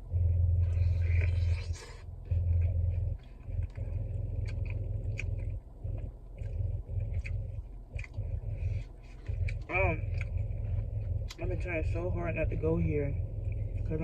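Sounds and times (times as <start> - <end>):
low hum: 0.0 - 14.0
chewing and mouth smacking: 1.0 - 11.5.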